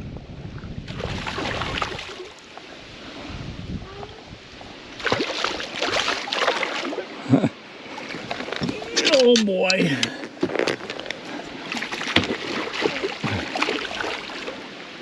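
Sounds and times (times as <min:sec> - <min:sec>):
fish splashing in water: 0:00.9 - 0:02.4, 0:05.0 - 0:07.1, 0:11.6 - 0:14.6.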